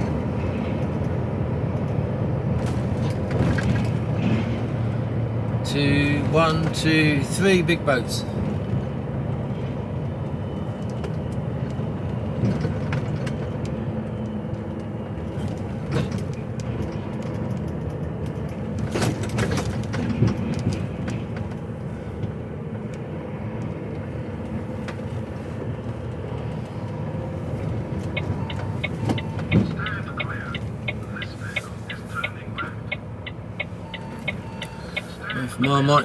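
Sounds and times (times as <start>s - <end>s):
lorry diesel engine running: 0.0s - 36.0s
road and cab noise: 0.0s - 36.0s
knocks and rattles: 2.6s - 4.8s, 15.2s - 21.7s.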